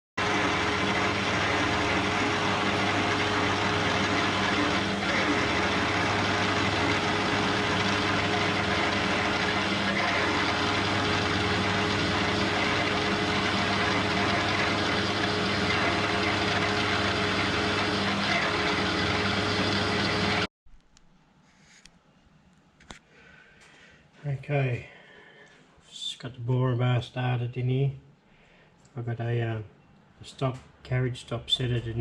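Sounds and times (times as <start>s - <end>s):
lathe cutting metal: 0.2s - 20.5s
metal lathe motor hum: 0.2s - 20.5s.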